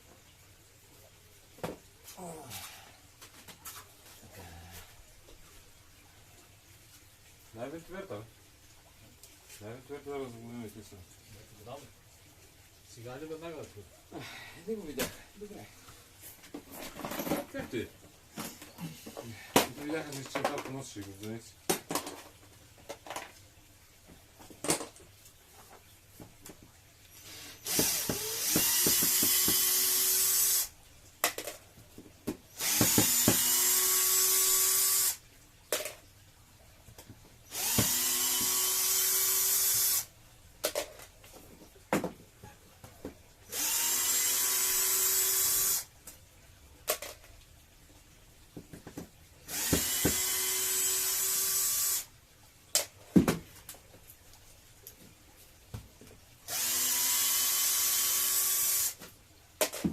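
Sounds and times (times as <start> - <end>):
electric drill whine: 27.2 - 30.7, 32.6 - 35.2, 37.5 - 40.1, 43.5 - 45.9, 49.5 - 52.1, 56.5 - 59.0.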